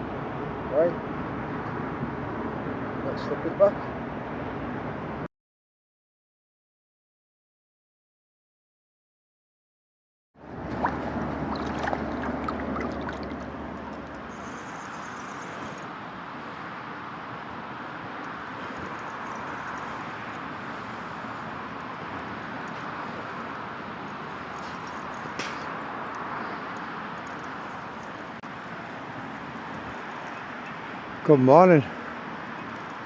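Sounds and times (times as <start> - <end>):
steady outdoor background noise: 0.0 - 5.3, 10.4 - 33.0.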